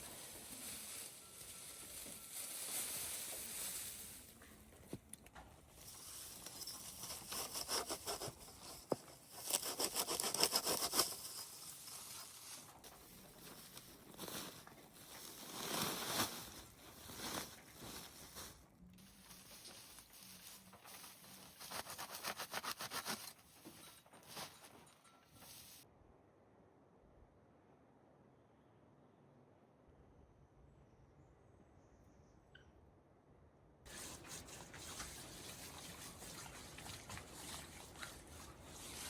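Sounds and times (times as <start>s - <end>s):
rasping scrape strokes: 5.8s - 14.6s, 19.0s - 25.8s, 33.9s - 39.0s.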